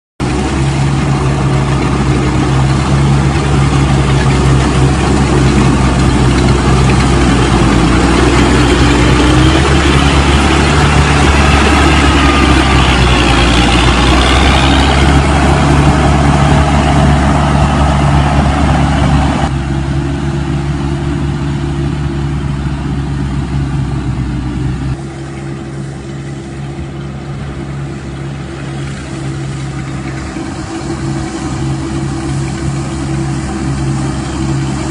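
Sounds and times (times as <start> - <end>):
combine harvester engine running: 0.2 - 34.9
wavering whines: 0.4 - 19.5.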